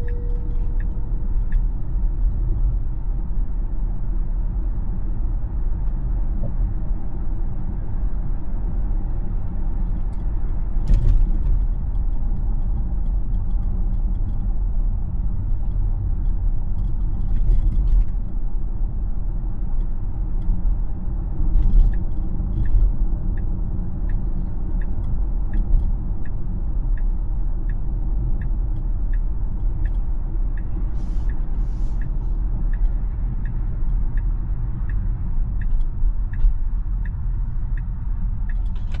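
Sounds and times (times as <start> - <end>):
turn signal ticking: 0.0 - 3.4, 19.4 - 39.0
road and tyre rumble: 0.0 - 39.0.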